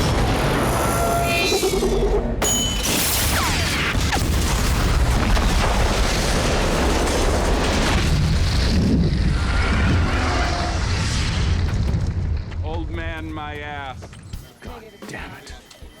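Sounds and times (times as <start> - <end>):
deep rumbling explosion: 3.8 - 13.2.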